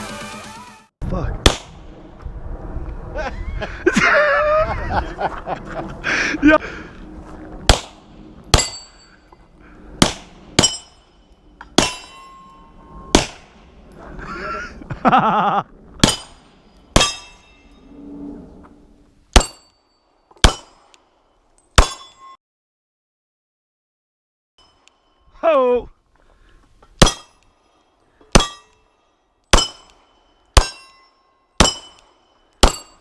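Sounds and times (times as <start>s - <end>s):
gunshots with metallic ring: 7.7s - 9.0s, 11.8s - 13.6s, 16.0s - 17.6s, 19.3s - 19.7s, 20.4s - 20.9s, 21.8s - 22.4s, 27.0s - 27.4s, 28.3s - 28.8s, 29.5s - 33.0s
person shouting: 25.4s - 25.9s.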